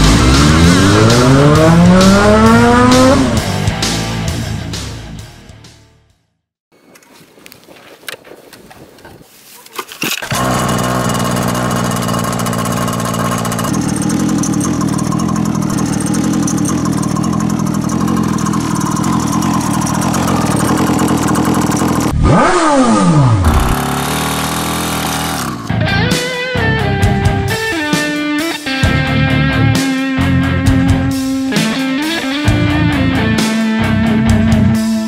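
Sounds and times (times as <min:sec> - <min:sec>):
motorbike engine running: 0:10.2 - 0:25.8.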